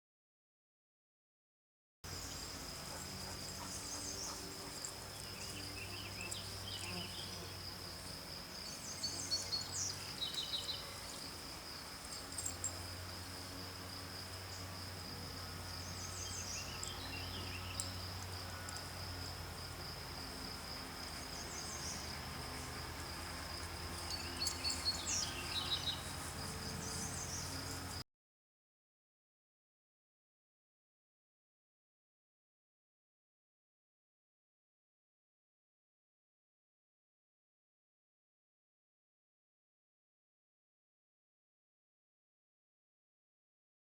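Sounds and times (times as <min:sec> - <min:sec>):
insects trilling: 0:02.1 - 0:28.0.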